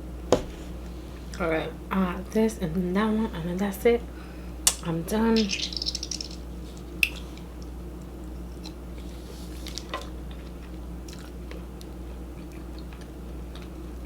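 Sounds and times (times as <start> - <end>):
steady low hum: 0.0 - 14.0
person chewing food: 5.7 - 13.9.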